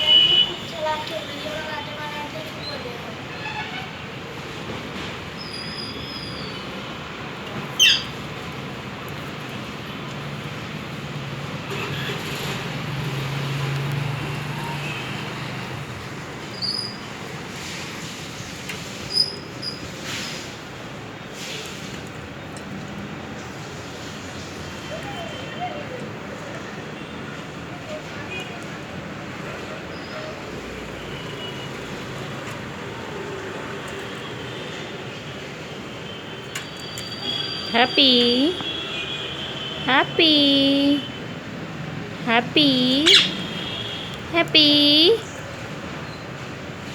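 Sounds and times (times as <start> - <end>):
vehicle passing: 10.2 - 16.5.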